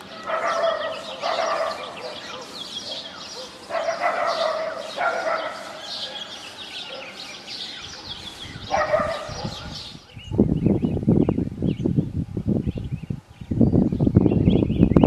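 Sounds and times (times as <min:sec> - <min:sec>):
small birds chirping: 0:00.0 - 0:15.0
dog-like barks: 0:00.1 - 0:07.2, 0:08.6 - 0:09.8
low rumbling buffeting: 0:07.6 - 0:15.0.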